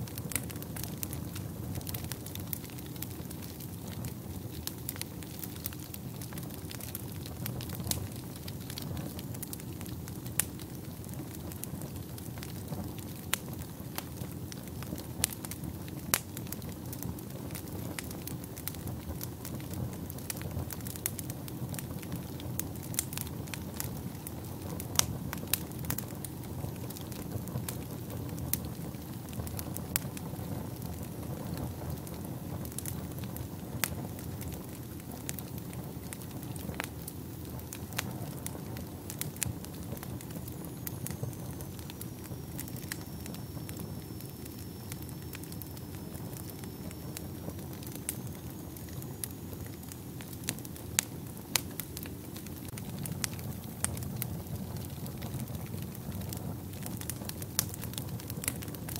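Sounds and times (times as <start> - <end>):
fire crackles and pops: 0.0 - 58.9
fire rumbling: 0.0 - 58.9
faint high whistle: 40.6 - 49.6.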